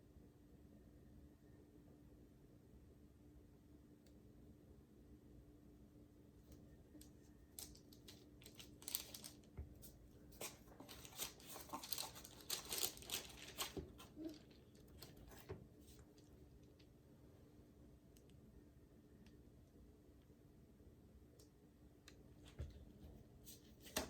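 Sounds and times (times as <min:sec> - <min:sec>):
canvas crinkling and clicking: 0:07.0 - 0:16.0.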